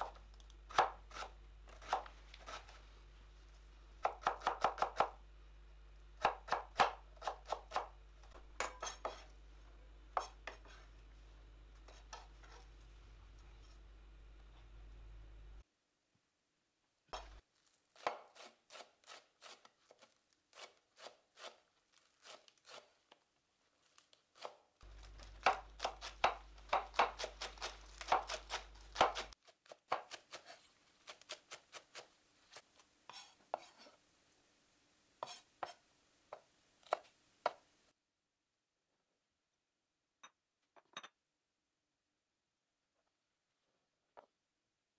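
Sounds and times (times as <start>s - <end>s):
knife chopping on cutting board: 0.0s - 2.8s, 6.2s - 8.0s, 8.6s - 9.3s, 10.2s - 10.8s, 24.4s - 32.1s, 35.2s - 37.6s.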